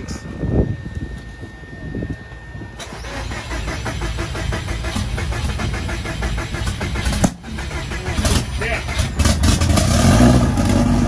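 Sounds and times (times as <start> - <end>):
engine cranking by starter: 2.7 - 11.0.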